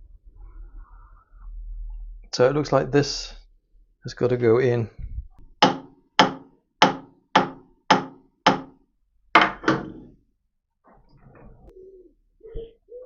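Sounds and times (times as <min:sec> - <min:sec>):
hammer knocking on steel plate: 0:05.6 - 0:08.8, 0:09.4 - 0:10.1.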